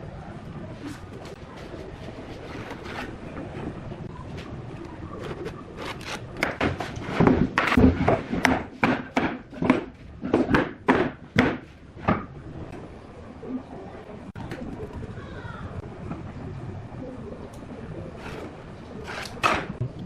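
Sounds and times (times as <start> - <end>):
sharp wooden knocks: 6.4 - 12.3.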